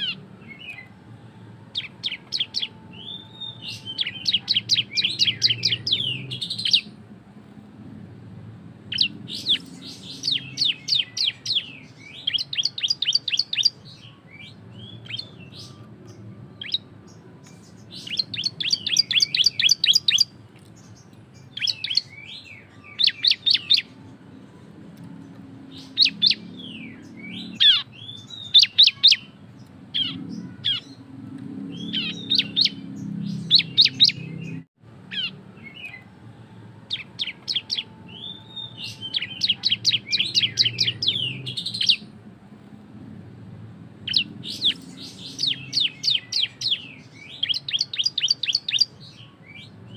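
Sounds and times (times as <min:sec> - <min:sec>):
bird rapid sharp chirps: 0:01.8 - 0:07.0, 0:08.9 - 0:16.9, 0:17.5 - 0:20.4, 0:21.4 - 0:24.0, 0:25.7 - 0:31.0, 0:31.6 - 0:36.0, 0:36.9 - 0:42.1, 0:44.0 - 0:49.3.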